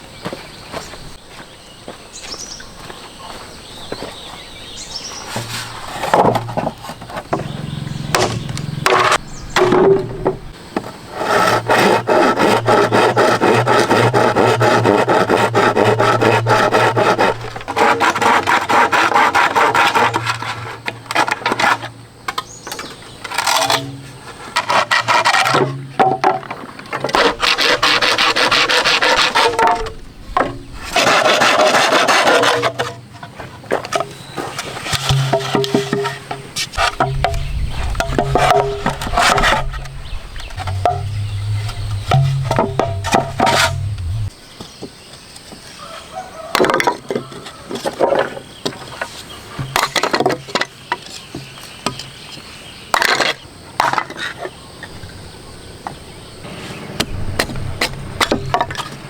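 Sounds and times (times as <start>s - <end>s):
hand tool rasping on wood: 11.1s - 20.8s, 27.1s - 29.6s.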